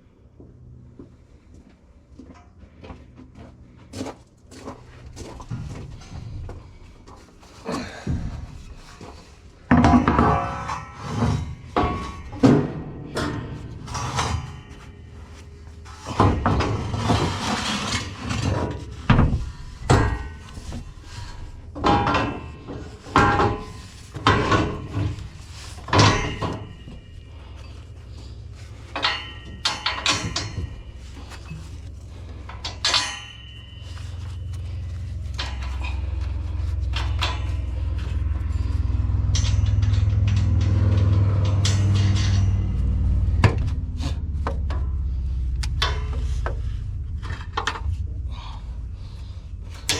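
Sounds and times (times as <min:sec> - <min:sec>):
low steady rumble: 0:00.0 - 0:49.9
metal tools knocking and clanking: 0:05.2 - 0:48.1.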